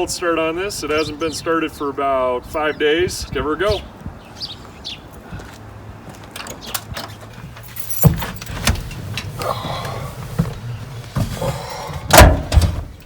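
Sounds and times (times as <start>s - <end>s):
keys jangling and clicking: 6.3s - 8.9s.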